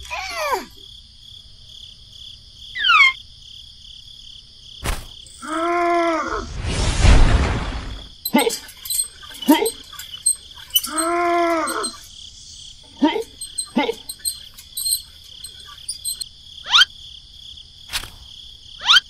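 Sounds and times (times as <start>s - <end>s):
crickets chirring: 0.0s - 19.0s
rising squeaky chirps: 8.2s - 16.9s.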